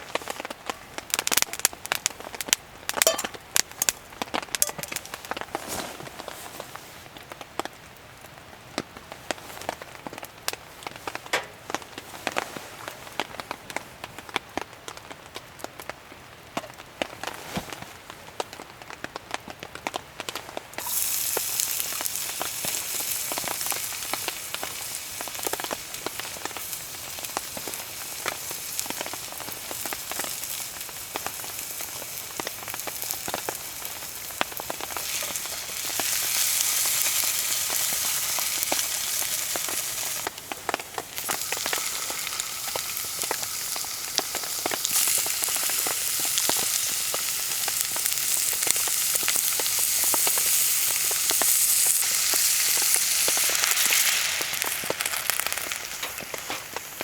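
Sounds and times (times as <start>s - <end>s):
food sizzling in a pan: 3.0s - 4.0s, 4.6s - 5.3s, 20.8s - 57.0s.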